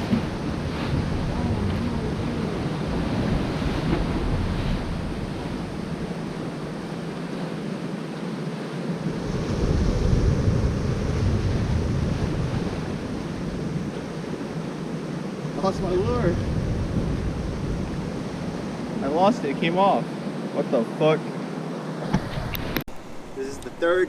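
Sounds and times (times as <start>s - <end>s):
wind buffeting microphone: 0.0s - 7.4s, 8.9s - 20.5s
ocean surf on rocky shore: 0.0s - 24.0s.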